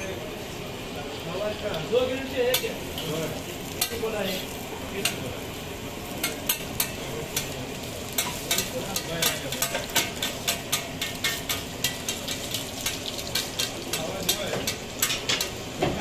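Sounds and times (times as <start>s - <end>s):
flatbread sizzling in oil: 0.0s - 16.0s
metal tongs clicking on griddle: 2.5s - 3.1s, 3.7s - 4.1s, 5.0s - 5.3s, 6.1s - 15.6s.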